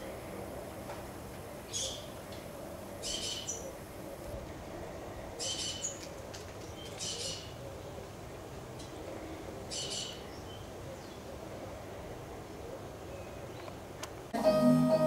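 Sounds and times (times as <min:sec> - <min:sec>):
bird calling: 0:03.0 - 0:04.5, 0:06.8 - 0:08.1.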